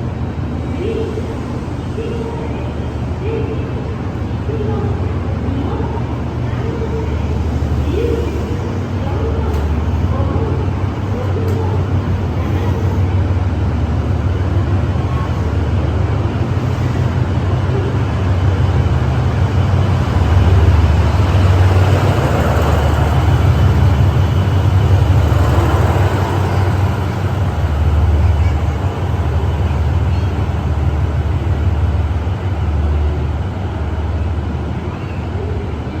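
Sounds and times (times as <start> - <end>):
train rumbling past: 0.0 - 36.0.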